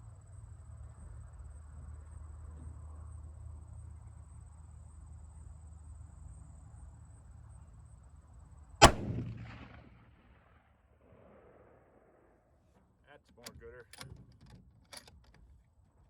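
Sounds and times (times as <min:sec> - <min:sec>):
faint low hum: 0:00.0 - 0:16.0
rifle shot with echo: 0:08.8 - 0:12.4.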